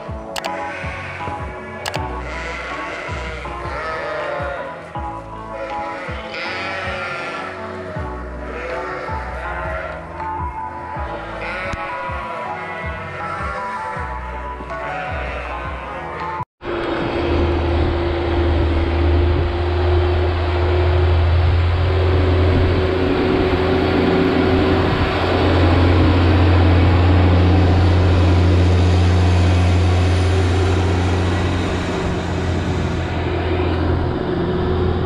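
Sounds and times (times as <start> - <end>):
tractor engine running: 16.6 - 35.0.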